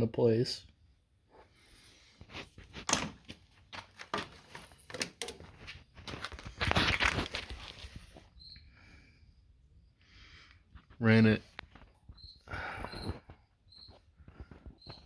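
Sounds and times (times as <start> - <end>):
hands handling wiring and parts: 2.2 - 8.1.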